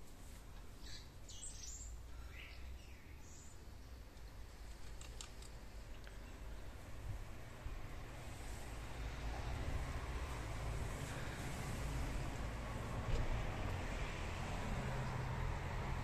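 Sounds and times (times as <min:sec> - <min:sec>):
faint bird chirps: 0:00.8 - 0:04.0.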